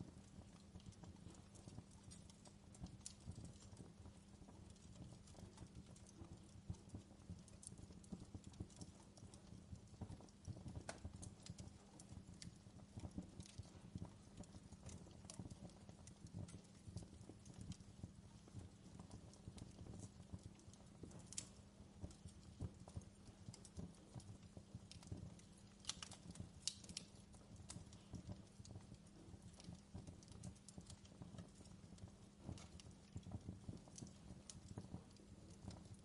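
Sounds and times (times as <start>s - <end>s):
fireplace fire crackling: 0.0s - 36.0s.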